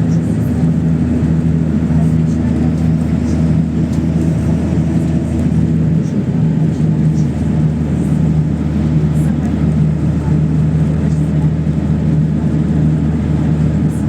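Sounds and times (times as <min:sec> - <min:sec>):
bus engine running: 0:00.0 - 0:14.0
road and body noise: 0:00.0 - 0:14.0.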